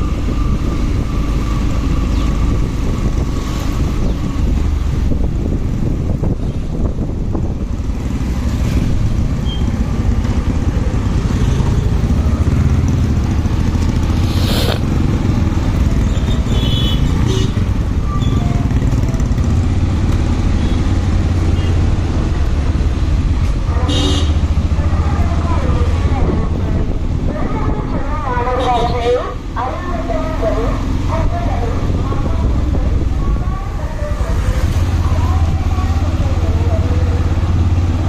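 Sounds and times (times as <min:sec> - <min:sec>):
wind on microphone: 0:00.0 - 0:16.5, 0:24.9 - 0:28.5, 0:30.8 - 0:37.8
motorcycle engine running: 0:06.8 - 0:27.6, 0:31.0 - 0:38.0.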